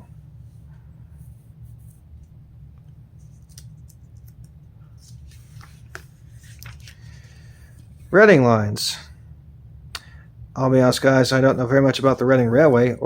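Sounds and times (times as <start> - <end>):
low electrical hum: 0.0 - 13.0
paper catalog rustling: 3.2 - 7.9.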